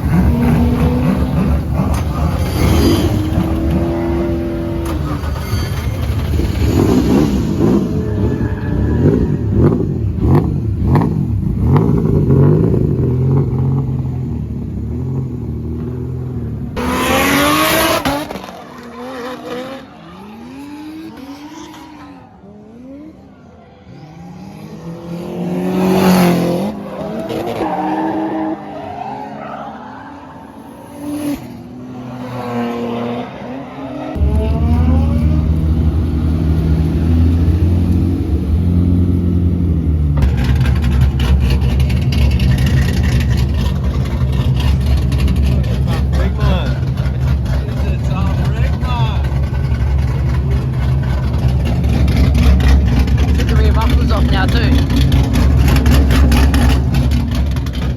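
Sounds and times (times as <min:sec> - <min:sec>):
tyres screeching: 0:00.0 - 0:10.0
car engines revving: 0:00.0 - 0:57.9.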